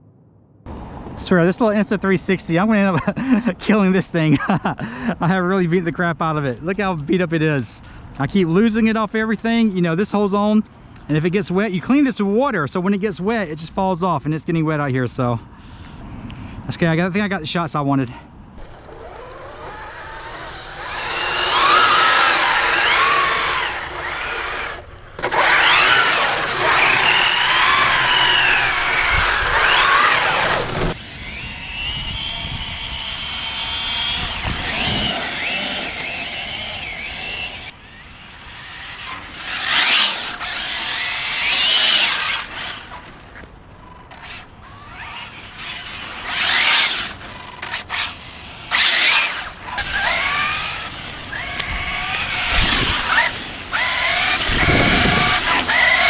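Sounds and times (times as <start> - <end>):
rc car electric motor whining: 18.6 - 56.0.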